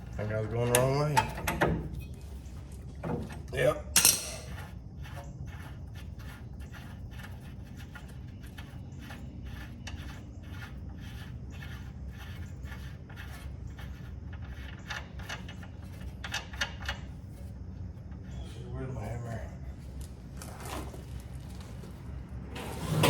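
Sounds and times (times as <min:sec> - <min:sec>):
wrench clicking and scraping: 0:03.9 - 0:17.2.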